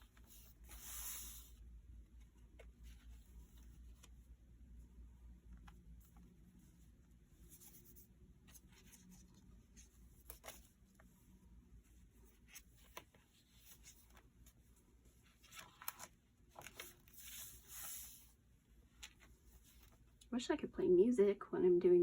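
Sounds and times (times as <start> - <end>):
paper rustling: 7.5 - 11.2, 11.8 - 20.2.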